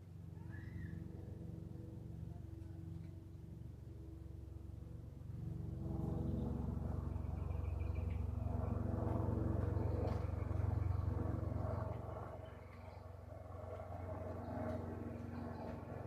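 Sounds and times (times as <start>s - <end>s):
faint bird chirp: 0.4s - 1.0s
passing vehicle engine rumble: 0.5s - 16.0s.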